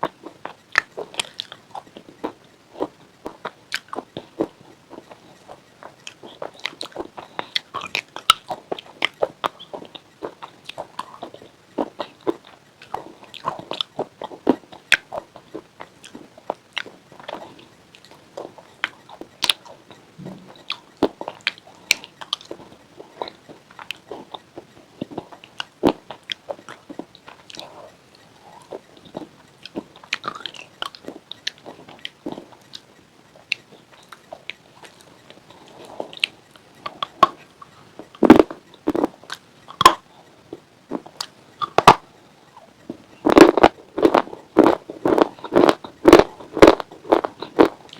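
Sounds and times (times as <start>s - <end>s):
crunching chips: 0.0s - 32.8s, 42.9s - 47.9s.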